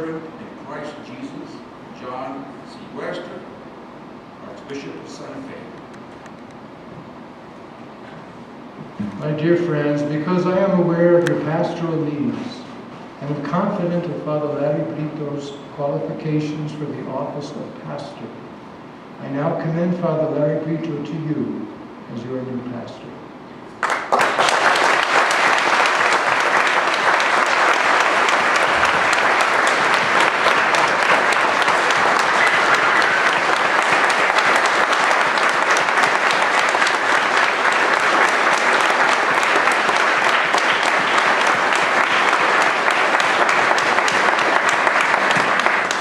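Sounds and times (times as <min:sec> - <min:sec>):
congregation applauding: 0:23.8 - 0:46.0.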